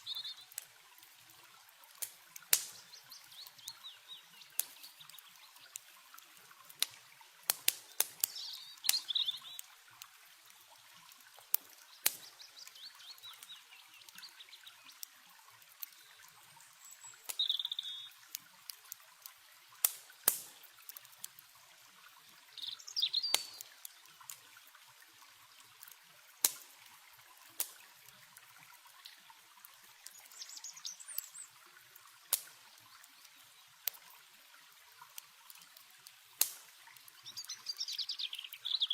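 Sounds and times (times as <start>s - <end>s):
birds chirping: 0.0s - 0.5s, 2.7s - 5.7s, 7.9s - 9.7s, 11.8s - 15.0s, 15.9s - 18.2s, 22.5s - 24.1s, 30.0s - 31.6s, 37.1s - 38.9s
campfire crackling and popping: 0.0s - 38.9s
running water trickling: 0.0s - 38.9s.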